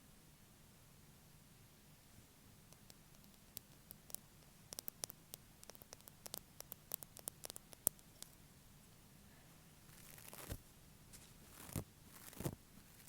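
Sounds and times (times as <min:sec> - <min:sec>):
fingernails tapping: 0:02.8 - 0:08.4.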